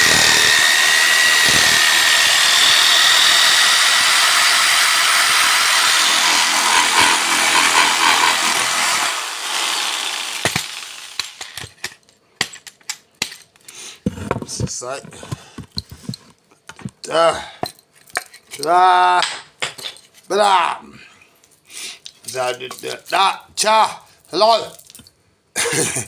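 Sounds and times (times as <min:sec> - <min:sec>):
electric jigsaw cutting wood: 0:00.0 - 0:11.6.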